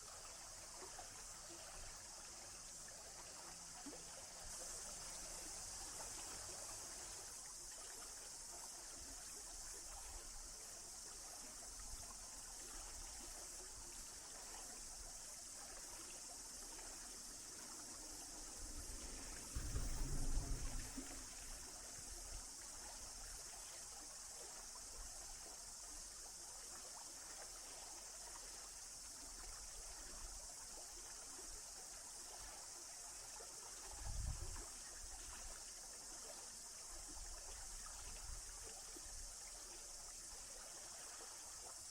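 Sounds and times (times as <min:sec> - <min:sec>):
stream water trickling: 0:00.0 - 0:41.9
low rumble: 0:19.5 - 0:21.5.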